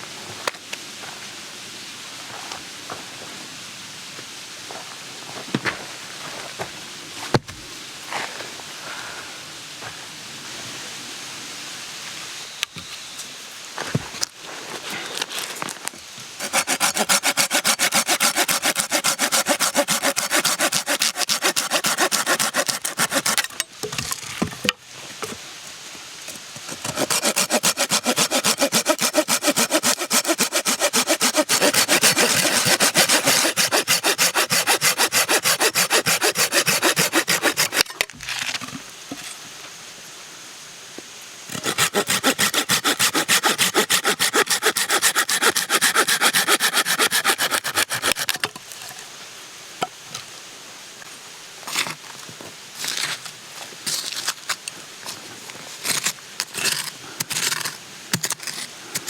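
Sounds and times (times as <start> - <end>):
hand saw cutting wood: 16.4 - 23.6, 26.7 - 38.1, 41.5 - 48.5.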